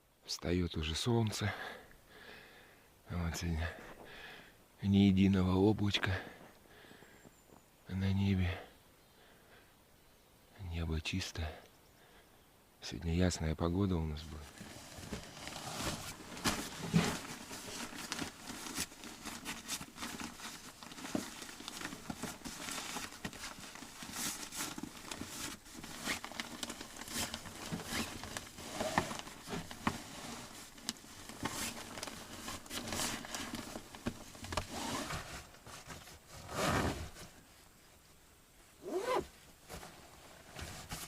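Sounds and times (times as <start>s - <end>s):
rustling and crinkling: 14.0s - 41.0s.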